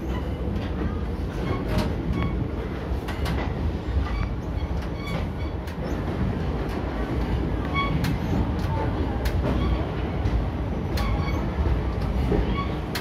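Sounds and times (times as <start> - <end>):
train wheels rumbling on track: 0.0 - 13.0
brief high squeaks: 4.0 - 6.0.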